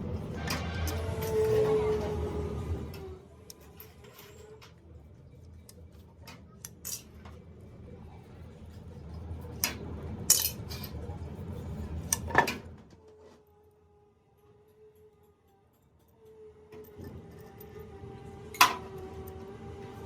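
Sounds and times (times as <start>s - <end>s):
metal tools clinking: 10.3s - 11.0s.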